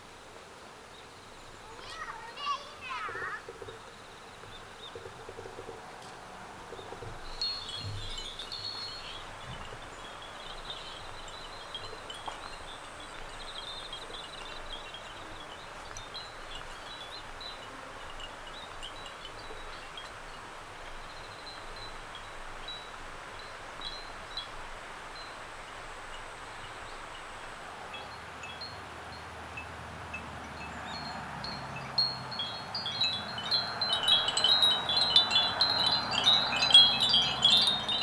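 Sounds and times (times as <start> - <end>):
soft wind hiss: 0.0 - 38.0
ceramic wind bells tinkling: 6.8 - 22.9, 29.6 - 38.0.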